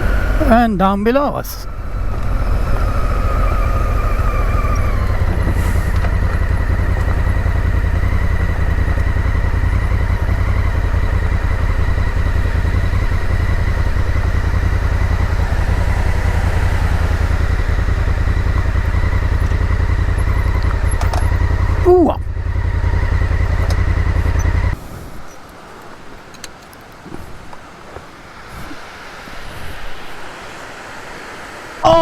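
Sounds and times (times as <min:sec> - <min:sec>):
motorcycle engine running: 0:01.6 - 0:24.8
falling whine: 0:01.6 - 0:25.6.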